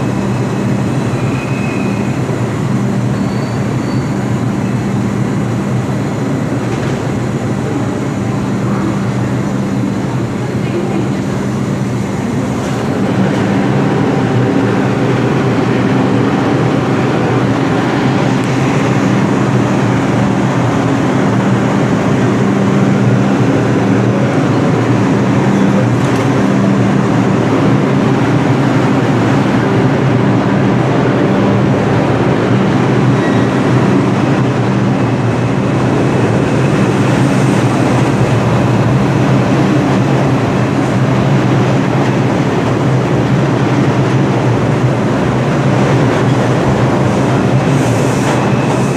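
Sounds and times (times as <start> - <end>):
subway train rumbling: 0.0 - 48.9.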